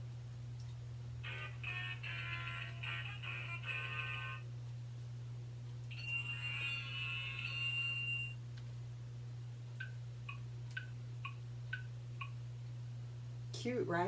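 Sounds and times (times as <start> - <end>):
steady low hum: 0.0 - 14.0
tinny electronic tune: 5.9 - 8.4.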